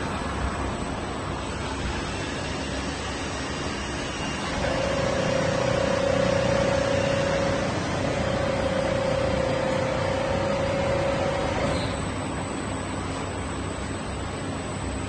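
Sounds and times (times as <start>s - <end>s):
sewing machine whining: 4.2s - 12.4s.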